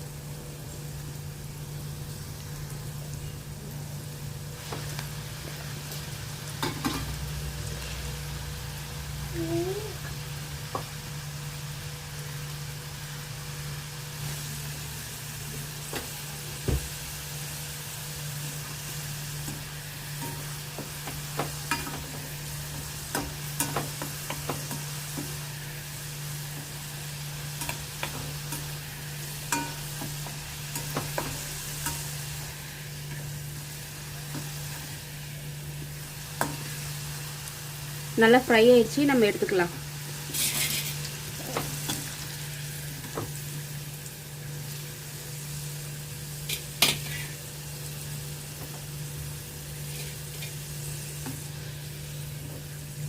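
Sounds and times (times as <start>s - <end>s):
okra deep-frying in oil: 0.0s - 53.0s
ladle stirring in pan: 19.4s - 35.2s, 40.2s - 43.3s.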